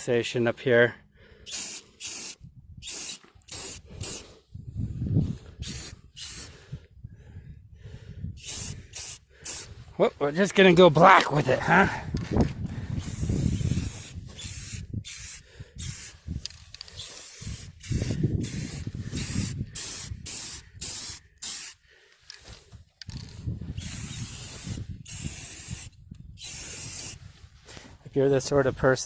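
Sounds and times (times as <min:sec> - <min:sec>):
aerosol spray can hissing: 0:01.5 - 0:04.3, 0:05.6 - 0:06.6, 0:08.4 - 0:09.7, 0:13.0 - 0:21.8, 0:23.8 - 0:27.2.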